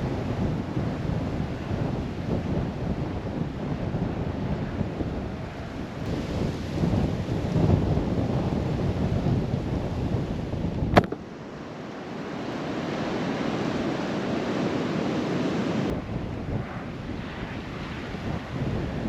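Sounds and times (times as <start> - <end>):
wind buffeting microphone: 0.0 - 19.0
sharp click: 11.0 - 11.2.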